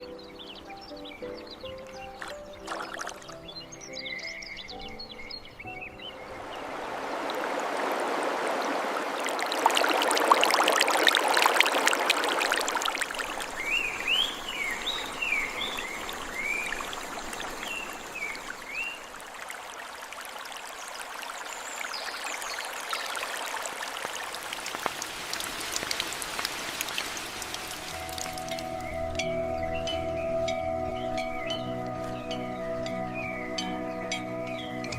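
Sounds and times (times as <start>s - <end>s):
bird chirping: 0.0s - 6.9s, 13.1s - 19.2s, 27.4s - 34.9s
stream water running: 0.0s - 34.9s.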